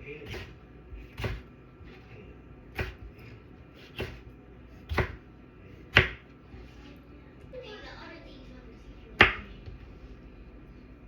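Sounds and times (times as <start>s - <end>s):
knife chopping on cutting board: 0.2s - 2.1s, 2.7s - 5.2s, 5.8s - 6.3s, 9.2s - 9.5s.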